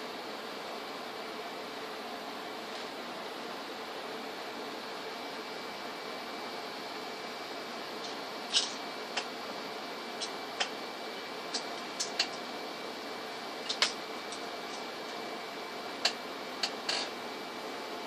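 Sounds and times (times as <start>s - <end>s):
small tools clicking and tapping: 13.7s - 14.8s.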